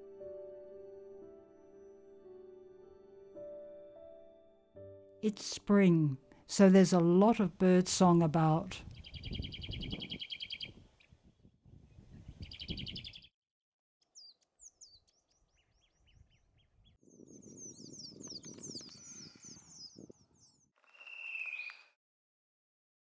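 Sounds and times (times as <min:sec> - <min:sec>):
songbirds singing: 0:08.0 - 0:10.8, 0:14.1 - 0:21.9.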